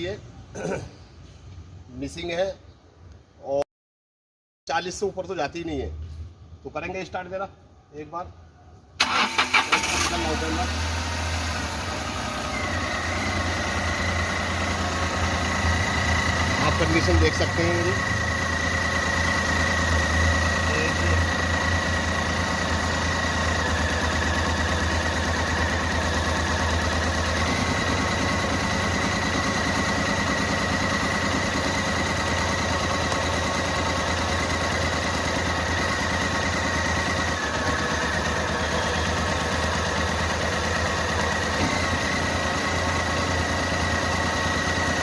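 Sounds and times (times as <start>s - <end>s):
car engine idling roughly: 9.0s - 45.0s.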